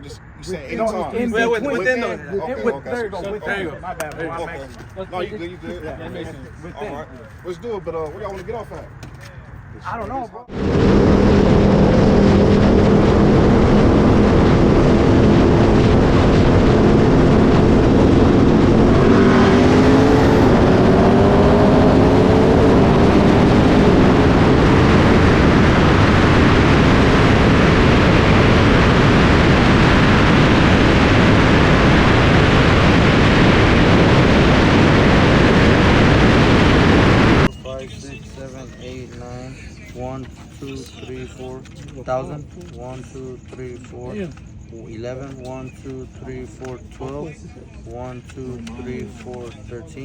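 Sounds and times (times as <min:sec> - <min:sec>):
wind and road noise: 0:00.0 - 0:50.0
car engine accelerating: 0:10.4 - 0:37.5.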